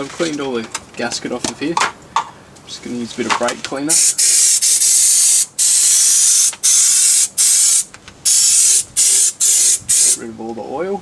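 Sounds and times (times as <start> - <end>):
aerosol can spraying hiss: 3.9 - 10.2.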